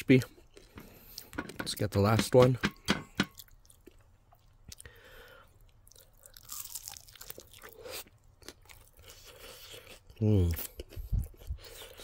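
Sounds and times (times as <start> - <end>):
chewing crispy chicken wing: 3.4 - 12.0.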